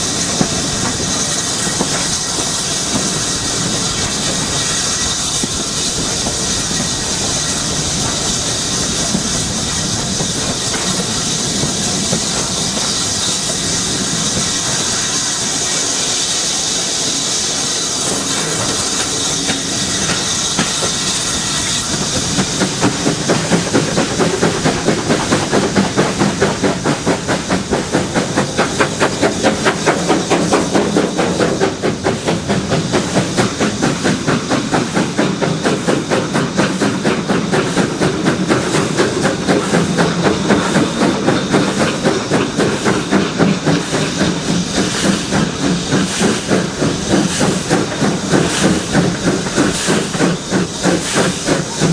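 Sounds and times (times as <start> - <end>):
steam locomotive hissing: 0.0 - 51.9
locomotive exhaust beats: 18.4 - 51.9.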